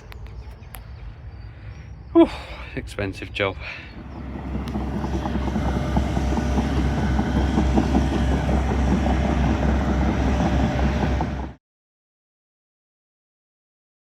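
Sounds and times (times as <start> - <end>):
diesel engine running: 3.4 - 11.6.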